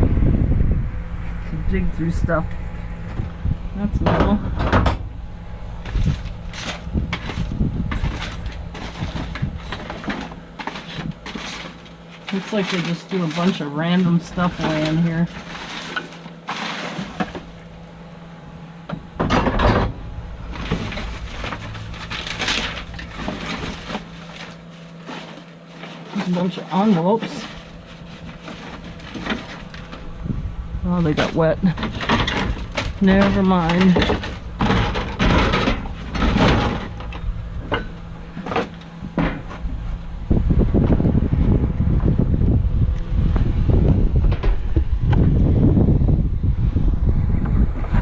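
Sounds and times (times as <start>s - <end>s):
wind rumble on microphone: 0.0s - 11.6s, 27.5s - 38.4s, 39.0s - 48.0s
junk rustling and scraping: 1.0s - 46.5s
debris clattering: 5.8s - 17.8s, 19.1s - 30.1s, 30.9s - 39.5s.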